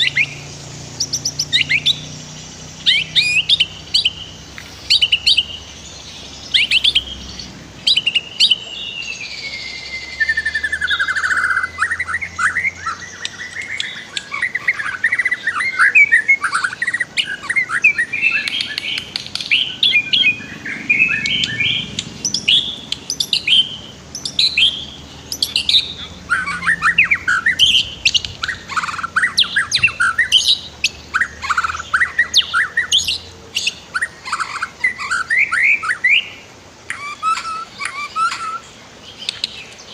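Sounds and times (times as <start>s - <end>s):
songbird whistles and trills: 0.0s - 39.9s
long falling bird whistle: 7.8s - 18.8s.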